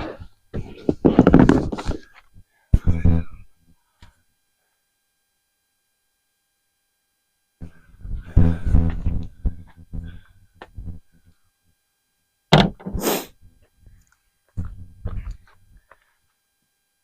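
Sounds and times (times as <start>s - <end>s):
objects knocking and clattering: 0.6s - 2.1s
sharp thunk: 12.5s - 13.0s
short scrape: 12.9s - 13.3s.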